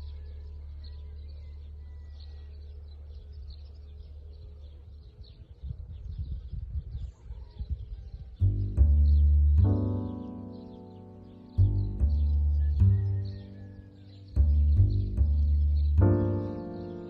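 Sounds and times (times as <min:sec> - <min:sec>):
small birds chirping: 0:00.0 - 0:17.0
steady low rumble: 0:08.4 - 0:10.5, 0:11.2 - 0:17.0
low thumps and buffeting: 0:08.4 - 0:17.0.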